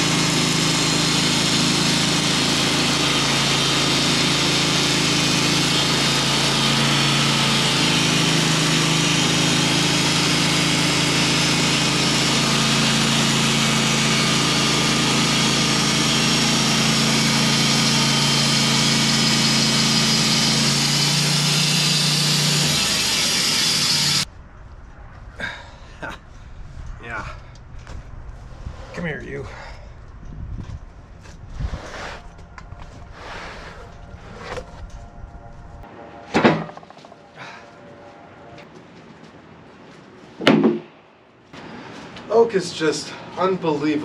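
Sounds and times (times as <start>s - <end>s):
saw blade cutting log: 0.0s - 24.3s, 31.6s - 32.4s, 33.1s - 34.7s
sawmill engine running: 0.0s - 24.3s, 30.6s - 38.5s, 41.6s - 44.0s.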